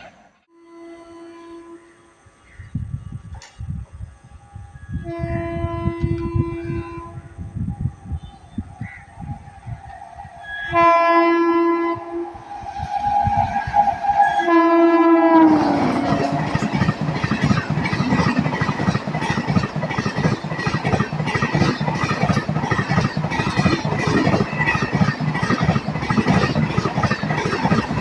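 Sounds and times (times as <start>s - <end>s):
locomotive horn: 0.5s - 2.2s, 4.9s - 7.4s, 10.4s - 16.8s
train rushing past: 8.8s - 28.0s
wheels clattering over rail joints: 15.5s - 28.0s.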